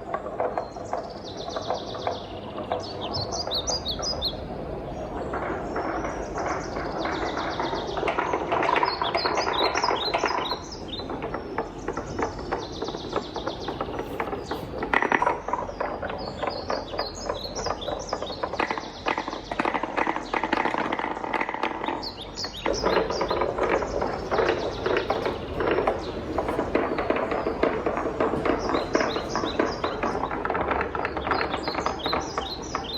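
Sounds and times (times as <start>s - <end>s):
wooden balls clattering down a run: 0.0s - 32.9s.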